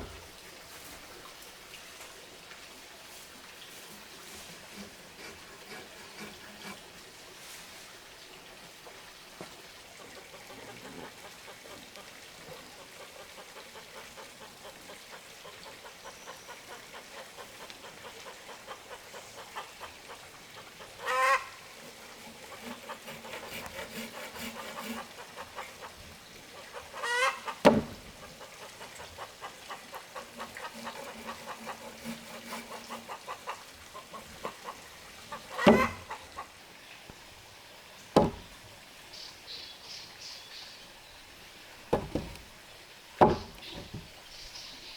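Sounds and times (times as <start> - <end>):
poultry squawking: 15.8 - 21.6, 26.6 - 36.4.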